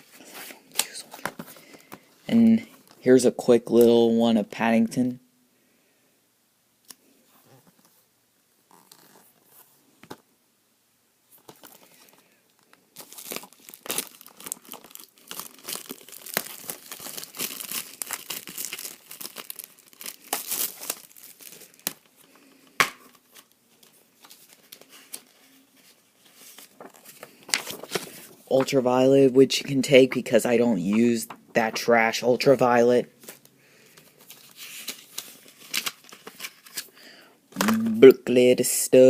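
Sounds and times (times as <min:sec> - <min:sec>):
plastic wrapping crinkling and tearing: 0:11.4 - 0:22.4, 0:34.1 - 0:36.9.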